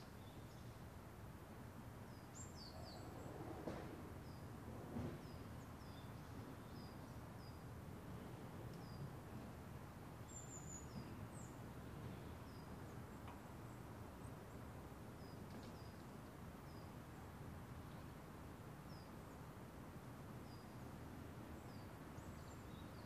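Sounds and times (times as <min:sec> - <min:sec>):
low background noise: 0:00.0 - 0:23.0.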